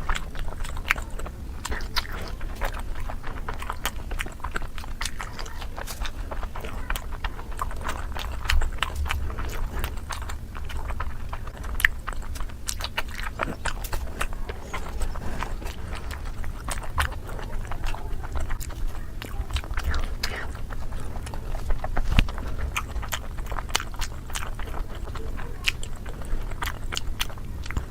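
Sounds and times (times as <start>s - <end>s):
chewing mouth sounds: 0.0s - 27.9s
low steady hum: 0.0s - 27.9s.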